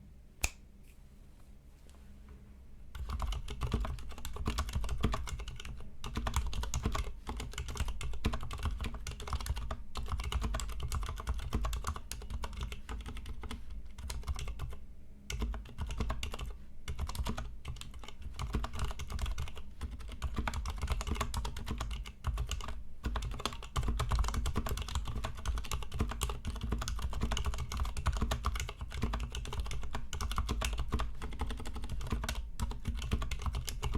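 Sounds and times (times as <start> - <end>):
typing on mechanical keyboard: 3.0 - 33.9.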